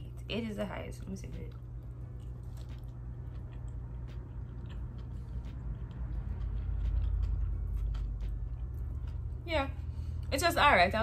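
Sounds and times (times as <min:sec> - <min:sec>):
low hum: 0:00.0 - 0:11.0
person chewing: 0:01.4 - 0:09.4.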